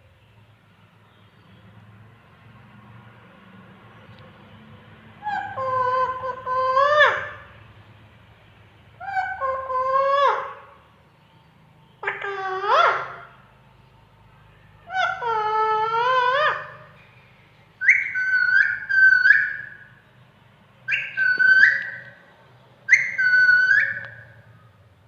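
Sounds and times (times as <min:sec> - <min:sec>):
parrot whistled calls: 0:17.8 - 0:19.9, 0:20.9 - 0:22.2, 0:22.9 - 0:24.5.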